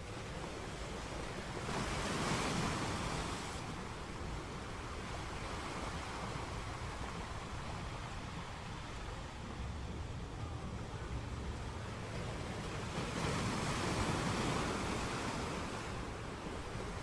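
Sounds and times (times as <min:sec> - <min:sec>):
sea surf washing in: 0:00.0 - 0:17.0.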